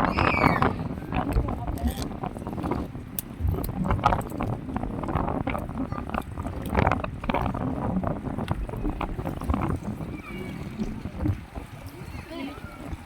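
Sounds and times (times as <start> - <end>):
moving water: 0.0 - 13.0
wind buffeting microphone: 0.0 - 13.0.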